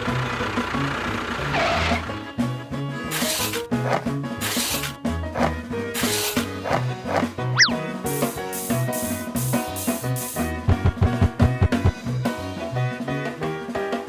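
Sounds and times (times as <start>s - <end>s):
music with drums and bass: 2.1s - 14.0s
quick falling tone: 7.6s - 7.8s.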